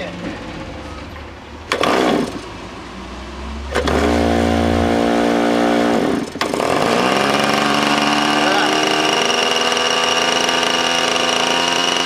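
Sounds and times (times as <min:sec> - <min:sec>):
small engine running: 0:01.7 - 0:02.4, 0:03.7 - 0:12.0
electric starter spinning engine: 0:01.7 - 0:02.5, 0:03.7 - 0:12.0.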